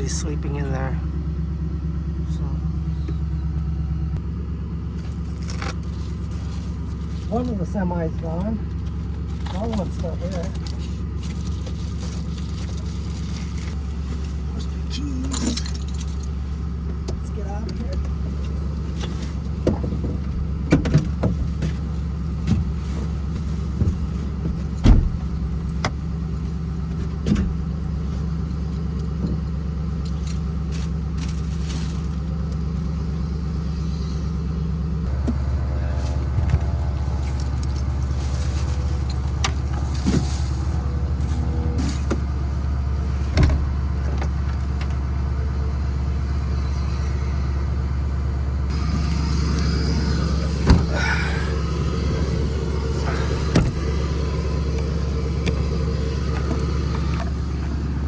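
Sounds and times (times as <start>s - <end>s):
vehicle engine running: 0.0s - 58.0s
keys jangling: 15.2s - 16.4s.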